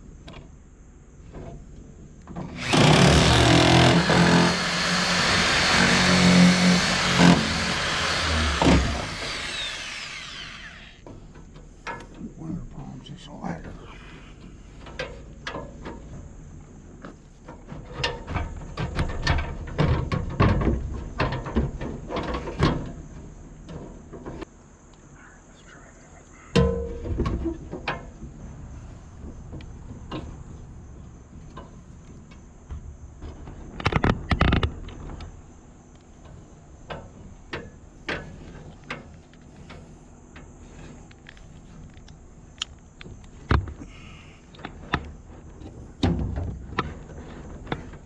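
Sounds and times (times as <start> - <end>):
faint high-pitched hiss: 22.5 - 27.0
knocks and clunks from handling: 44.6 - 48.0.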